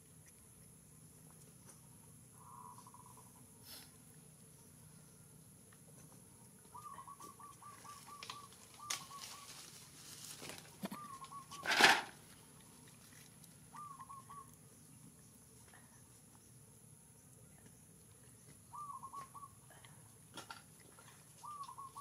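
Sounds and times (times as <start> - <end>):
bird chirping quickly: 11.0 - 11.6, 13.7 - 14.5, 18.7 - 19.6, 21.4 - 22.0.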